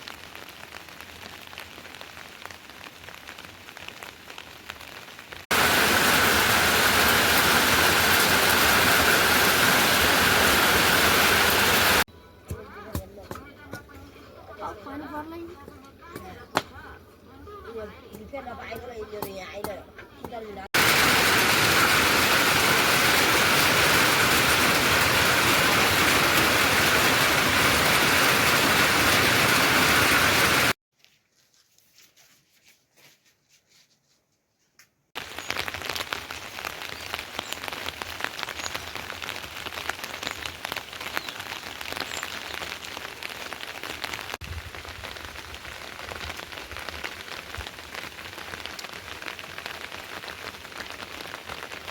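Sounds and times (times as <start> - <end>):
heavy rain downpour: 0.0 - 12.1, 20.8 - 30.8, 35.2 - 51.9
raindrops pattering: 0.0 - 12.1, 20.7 - 30.8, 35.2 - 51.9.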